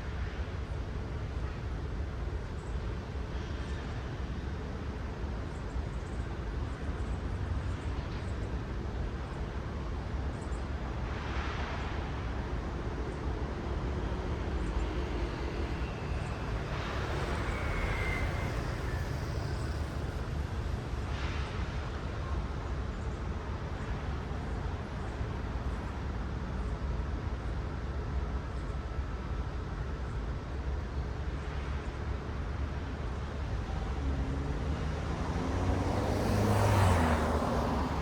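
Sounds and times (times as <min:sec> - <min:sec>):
traffic rumble: 0:11.8 - 0:25.3, 0:31.1 - 0:38.0
cars passing close by: 0:13.2 - 0:21.8, 0:33.7 - 0:38.0.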